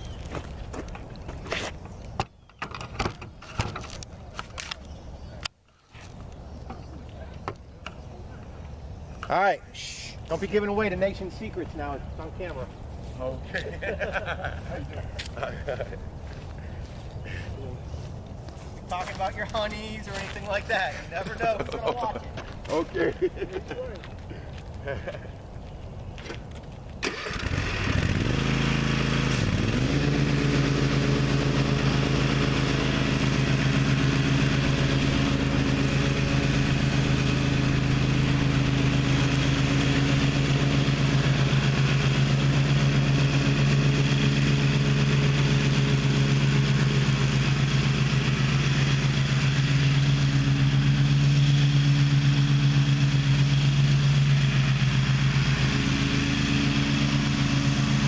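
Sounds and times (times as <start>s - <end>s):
mower engine starting and running: 27.0s - 58.0s.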